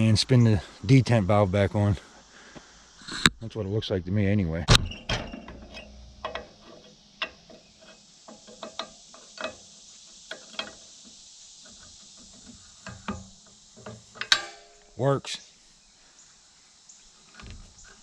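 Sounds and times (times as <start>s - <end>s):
metallic clicks of hand tools: 12.3s - 14.9s.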